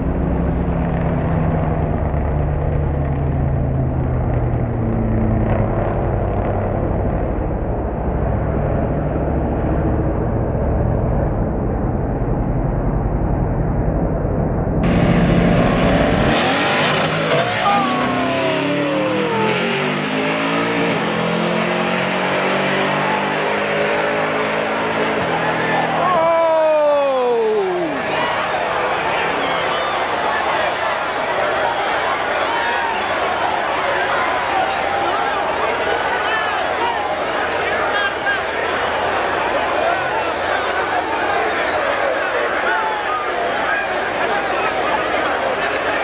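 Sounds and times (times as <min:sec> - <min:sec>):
drag car engine: 0:00.0 - 0:11.6, 0:14.8 - 0:26.4.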